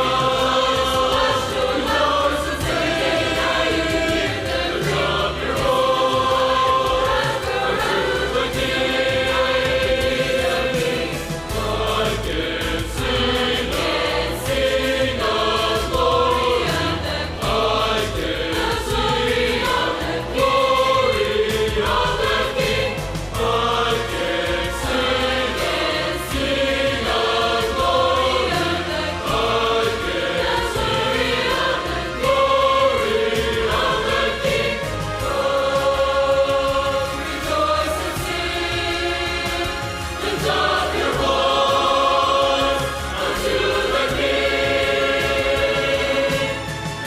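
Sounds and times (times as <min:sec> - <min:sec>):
choir singing a worship song: 0:00.0 - 0:47.0
instrumental accompaniment: 0:00.0 - 0:47.0.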